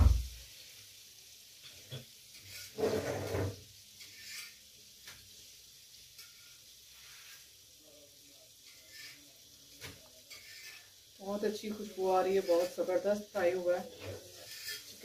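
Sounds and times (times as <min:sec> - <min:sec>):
faint steady hiss: 0:00.0 - 0:15.0
fried chicken sizzling: 0:00.0 - 0:15.0.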